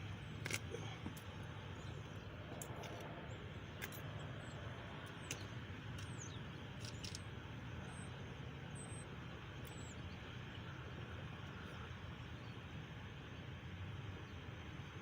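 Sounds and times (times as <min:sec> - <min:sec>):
low background hum: 0:00.0 - 0:15.0
light metallic clicks: 0:03.7 - 0:07.3
faint bird chirps: 0:04.2 - 0:10.8.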